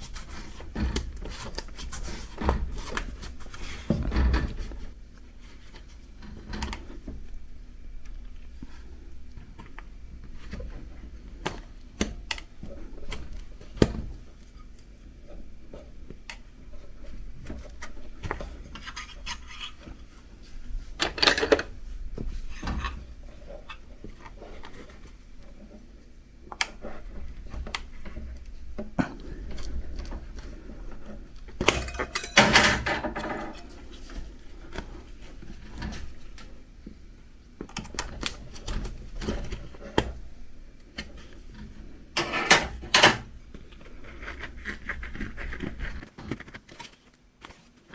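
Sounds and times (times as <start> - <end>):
metal clatter: 31.6 - 33.8.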